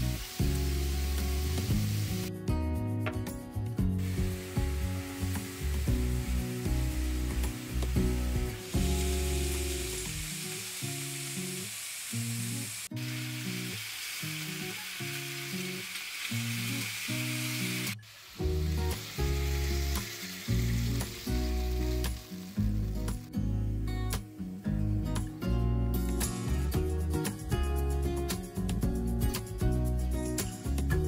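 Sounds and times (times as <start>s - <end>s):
food sizzling in hot fat: 0.0s - 2.4s, 4.0s - 23.5s
background music: 0.0s - 11.3s, 17.5s - 31.0s.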